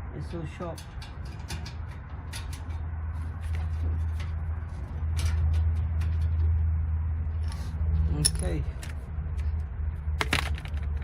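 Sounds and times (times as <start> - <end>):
sheet metal parts clicking: 0.6 - 6.6.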